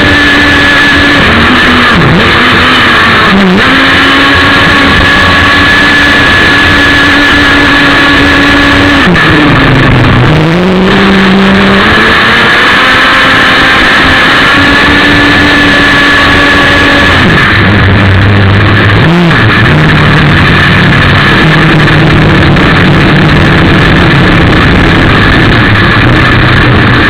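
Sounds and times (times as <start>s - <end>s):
model boat engine at high revs: 0.0s - 27.0s.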